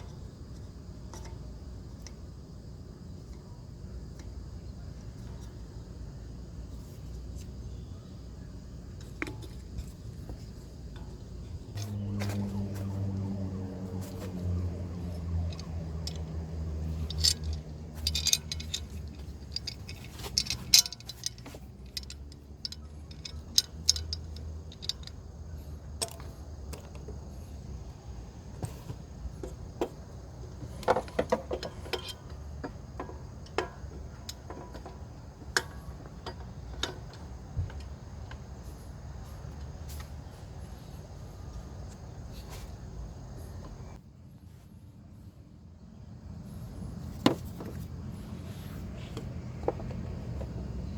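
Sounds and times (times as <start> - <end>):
metal tools clinking: 14.0 - 27.0.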